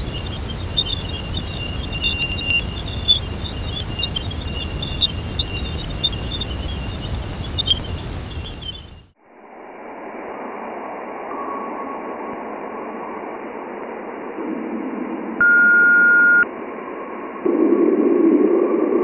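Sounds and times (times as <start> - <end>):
clean beep: 0.0 - 9.0, 15.4 - 16.5
faint steady tone: 0.0 - 9.1
radio static hiss: 0.0 - 9.2
burst of rushing static: 0.0 - 11.3.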